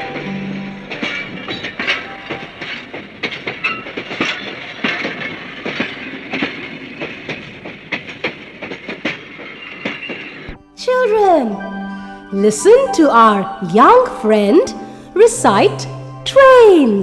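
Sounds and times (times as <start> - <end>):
train wheels clacking on rail joints: 0.0 - 10.6
train running noise: 0.0 - 10.7.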